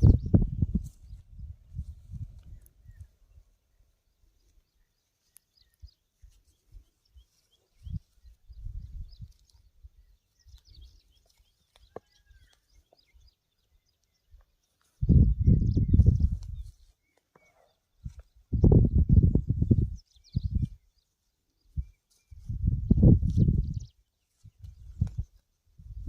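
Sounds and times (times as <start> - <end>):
bird chirps: 2.5 - 19.0.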